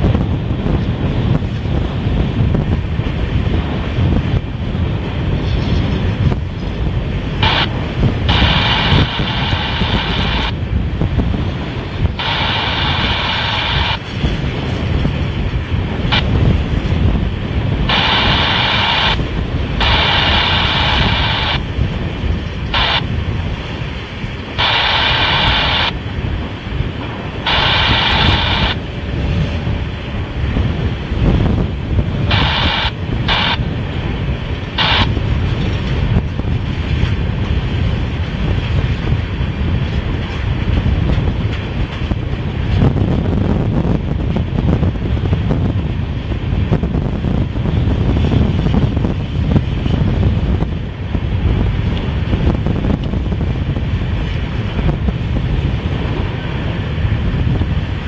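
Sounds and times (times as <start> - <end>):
train wheels rumbling on rail: 0.0 - 58.0
wind buffeting microphone: 0.0 - 58.0
radio static bursts: 7.4 - 10.6, 12.1 - 14.0, 17.9 - 21.7, 22.7 - 23.1, 24.6 - 26.0, 27.4 - 28.8, 32.3 - 33.7, 34.8 - 35.3.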